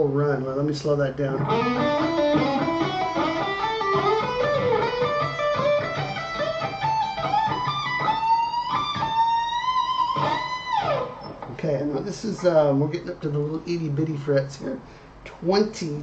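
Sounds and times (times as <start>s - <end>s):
electric guitar single-note run: 1.4s - 11.5s.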